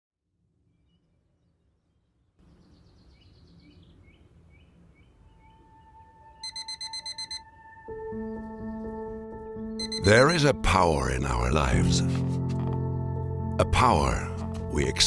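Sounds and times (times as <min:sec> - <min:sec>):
bird-like chirps: 0:00.7 - 0:07.4
alarm clock beeping: 0:06.4 - 0:07.5, 0:09.8 - 0:10.4.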